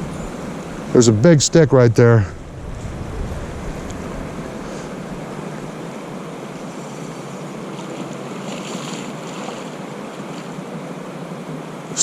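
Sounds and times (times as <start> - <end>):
wind buffeting microphone: 0.0 - 5.5
rushing water: 0.0 - 12.0.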